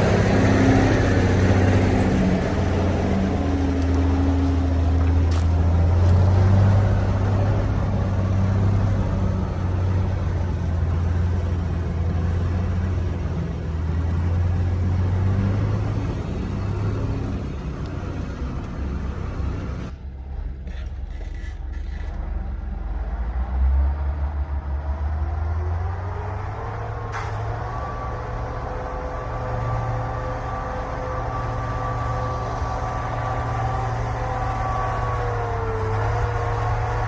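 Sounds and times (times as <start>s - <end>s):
truck engine droning: 0.0s - 37.0s.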